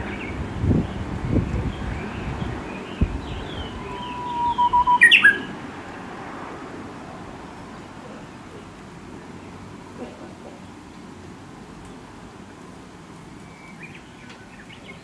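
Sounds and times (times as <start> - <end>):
bush warbler singing: 0.0 - 5.8
faint bird calls: 2.1 - 5.6.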